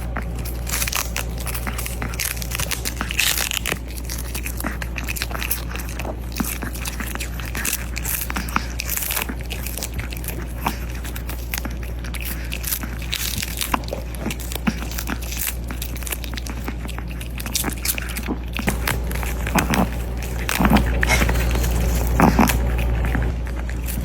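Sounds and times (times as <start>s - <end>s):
dog crunching food: 0.0s - 24.0s
steady low hum: 0.0s - 24.0s.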